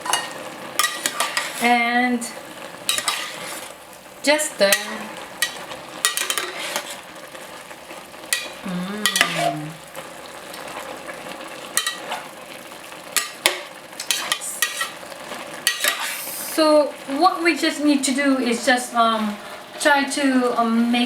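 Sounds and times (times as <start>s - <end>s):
utensil scraping a pan: 0.0s - 1.8s, 2.9s - 3.8s, 4.7s - 7.1s, 11.8s - 12.4s, 13.2s - 15.0s, 15.6s - 16.3s
food sizzling in a frying pan: 0.0s - 21.0s.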